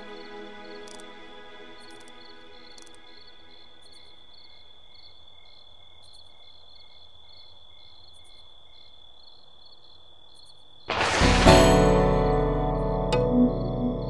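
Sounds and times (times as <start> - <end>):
crickets chirping: 0.0 - 11.2.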